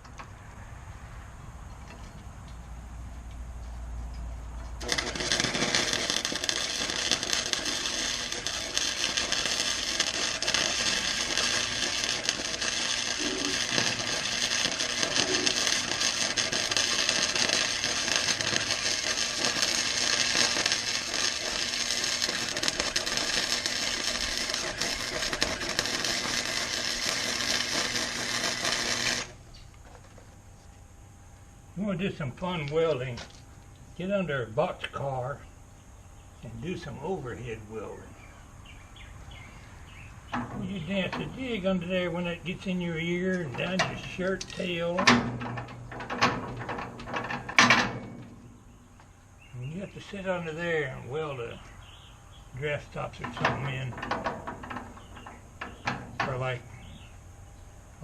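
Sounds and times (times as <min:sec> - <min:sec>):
welding arc crackling: 0:04.7 - 0:29.5, 0:40.2 - 0:51.6, 0:52.5 - 0:57.0.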